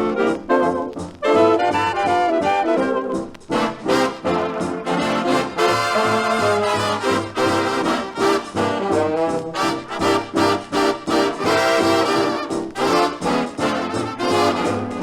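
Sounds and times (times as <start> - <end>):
big band orchestra playing: 0.0 - 15.0
trombones and trumpets: 0.0 - 15.0.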